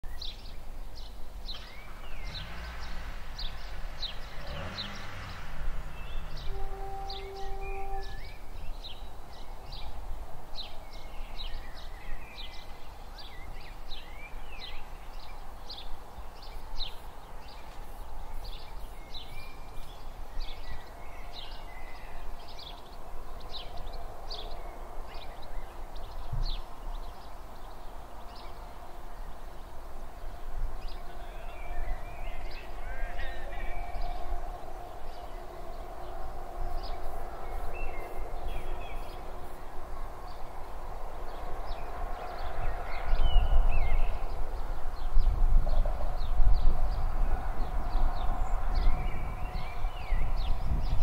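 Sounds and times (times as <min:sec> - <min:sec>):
small birds chirping: 0:00.1 - 0:34.2.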